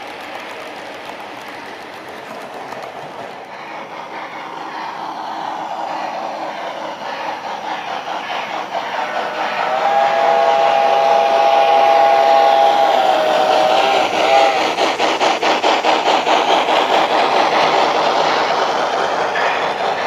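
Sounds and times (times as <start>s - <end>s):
rhythmic locomotive chuffing: 0.0s - 20.0s
steady steam hiss: 0.0s - 20.0s
steam locomotive two-note whistle: 9.4s - 14.6s.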